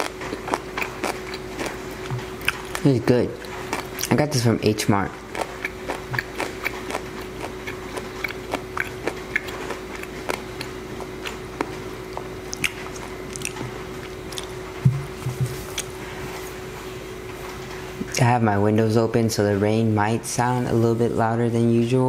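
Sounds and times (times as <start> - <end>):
person chewing food: 0.0 - 4.4, 5.0 - 16.7
wet mouth clicks and smacks: 5.4 - 10.7, 12.2 - 13.7, 14.3 - 14.6.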